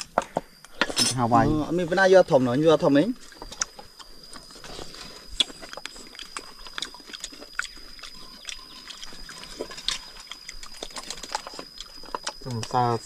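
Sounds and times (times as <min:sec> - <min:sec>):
faint high whine: 0:00.0 - 0:13.0
person chewing wetly: 0:03.2 - 0:12.8.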